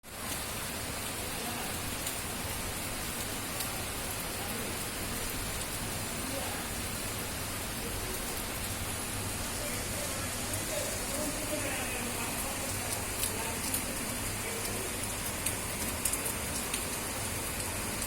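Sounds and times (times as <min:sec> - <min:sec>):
steady rain falling: 0:00.0 - 0:18.0
sharp raindrop ticks: 0:01.9 - 0:02.2, 0:03.1 - 0:05.7, 0:11.5 - 0:18.0.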